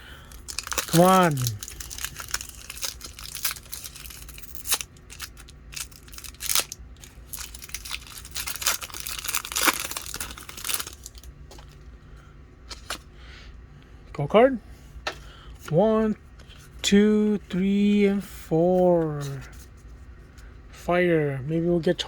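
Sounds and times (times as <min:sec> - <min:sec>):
foil wrapper tearing and crinkling: 0:00.0 - 0:11.3.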